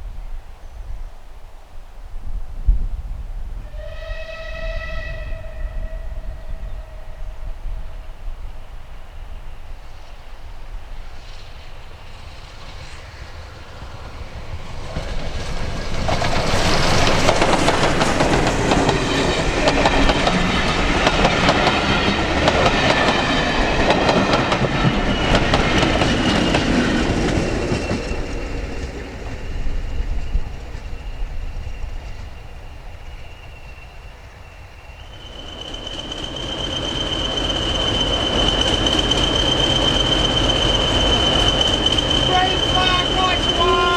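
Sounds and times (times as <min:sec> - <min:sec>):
train wheels clattering on rails: 0:11.2 - 0:43.9
high wheel squeal: 0:29.6 - 0:43.9.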